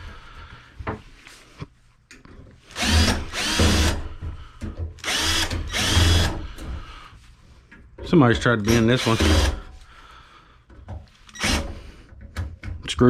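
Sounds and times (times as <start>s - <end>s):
power drill whining: 2.7s - 4.1s, 5.0s - 6.7s, 8.6s - 9.7s, 11.3s - 11.9s.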